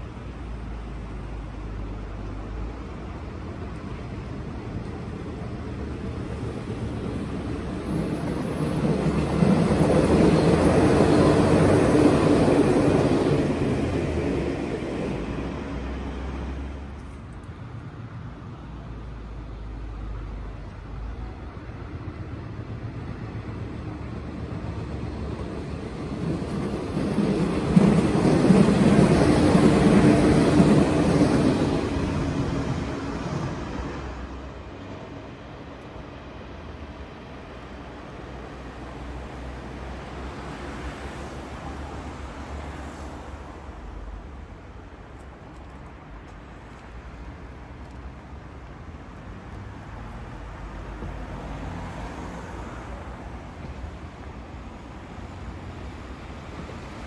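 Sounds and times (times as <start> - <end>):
electric train running past: 0.0 - 57.0.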